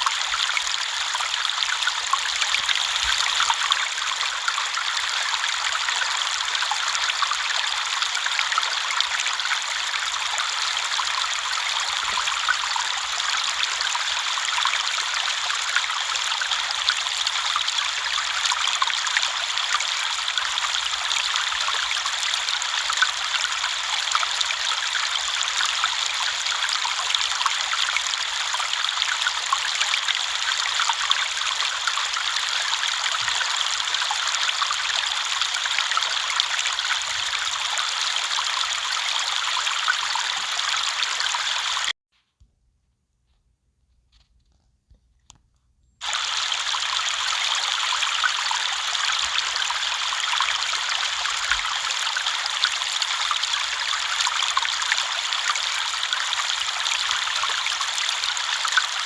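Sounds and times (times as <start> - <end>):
river water flowing over stones: 0.0 - 41.9, 46.0 - 59.0.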